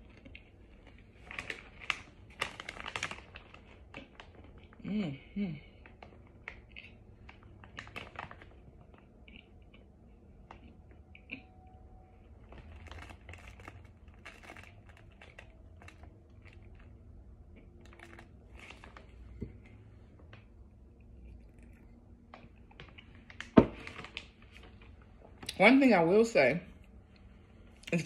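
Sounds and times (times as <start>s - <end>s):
crunching chewing: 6.0s - 23.6s.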